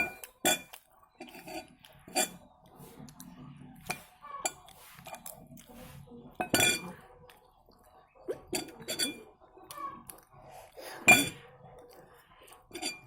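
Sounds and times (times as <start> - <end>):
cutlery clinking on a plate: 0.0 - 2.4, 6.4 - 6.9, 8.5 - 9.2, 11.0 - 11.4, 12.7 - 13.0.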